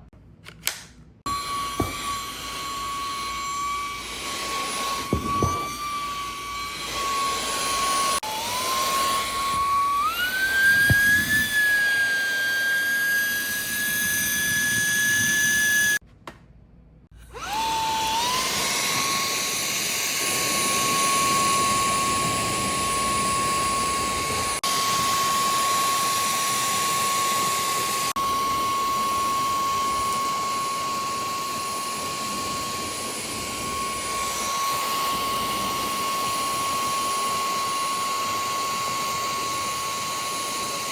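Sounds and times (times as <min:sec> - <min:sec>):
vacuum motor whine: 0:01.3 - 0:16.0, 0:17.2 - 0:40.9.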